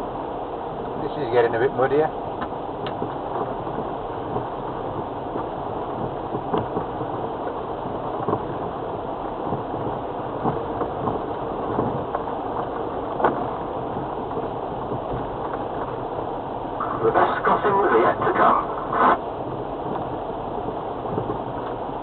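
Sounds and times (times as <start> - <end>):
engine and tyre drone: 16.7 - 22.0.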